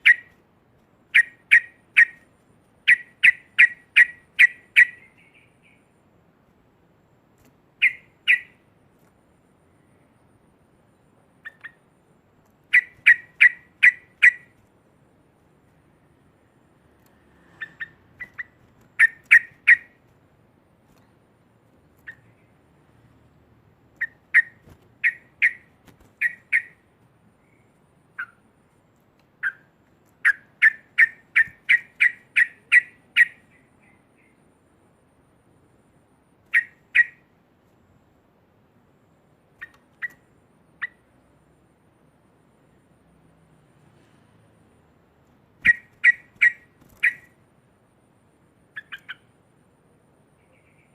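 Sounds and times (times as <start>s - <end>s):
bird chattering calls: 0.0s - 0.4s, 1.1s - 5.8s, 7.8s - 8.6s, 11.4s - 11.8s, 12.7s - 14.6s, 17.5s - 20.0s, 22.0s - 22.5s, 24.0s - 26.8s, 27.4s - 28.4s, 29.4s - 34.4s, 36.5s - 37.2s, 45.6s - 47.4s, 48.7s - 49.3s.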